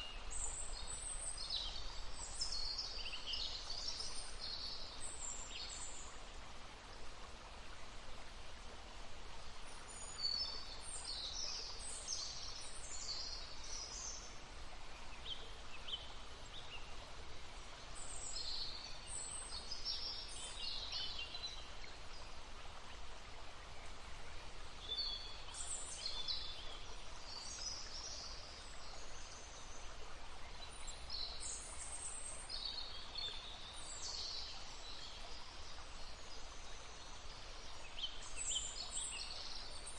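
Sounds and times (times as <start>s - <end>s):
babbling stream: 0.0s - 39.9s
songbirds chirping: 0.0s - 39.9s.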